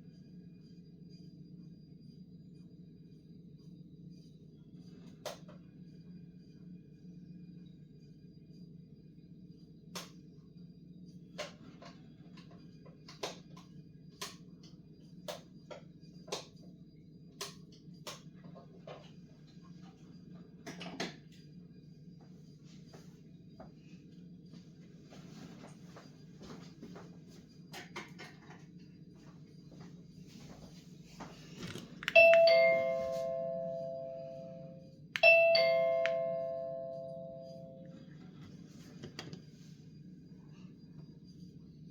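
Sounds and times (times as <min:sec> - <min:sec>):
steady low hum: 0:28.5 - 0:41.9
doorbell ding-dong chime: 0:32.1 - 0:37.9.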